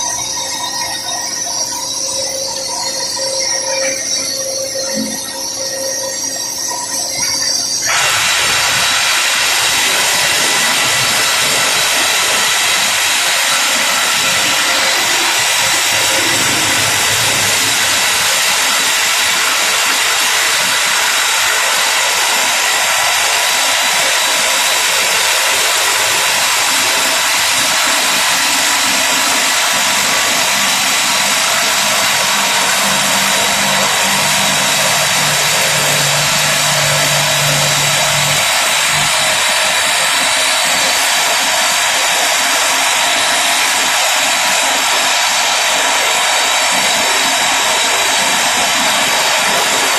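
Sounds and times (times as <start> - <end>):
rock drill hissing din: 7.8 - 49.9
low hum: 9.5 - 19.3, 31.4 - 39.8.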